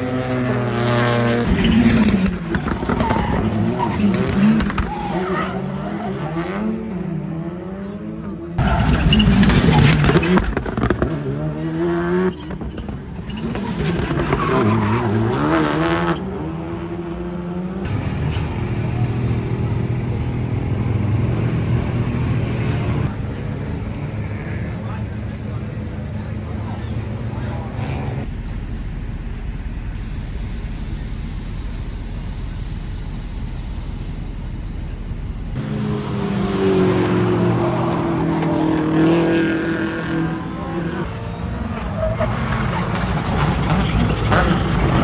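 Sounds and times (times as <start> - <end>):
tyre noise on track: 0.0 - 6.6, 8.6 - 16.4, 41.6 - 45.0
rally car engine revving: 0.0 - 45.0
steady rumbling noise: 28.1 - 35.6.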